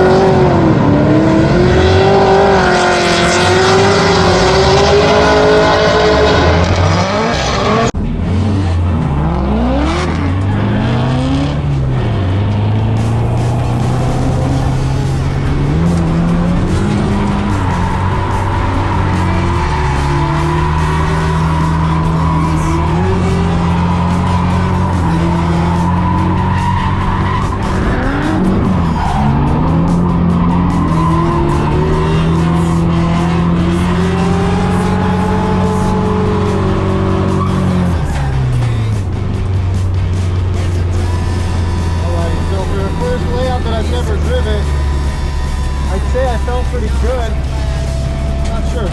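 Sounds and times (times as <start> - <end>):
car engine revving hard: 0.0 - 48.9
tyre squeal: 13.0 - 39.0, 40.6 - 48.9.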